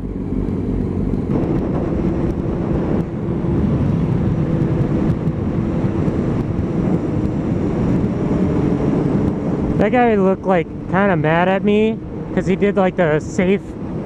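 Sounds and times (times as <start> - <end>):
motorcycle engine running: 0.0 - 12.4
wind rushing over microphone: 0.0 - 14.0.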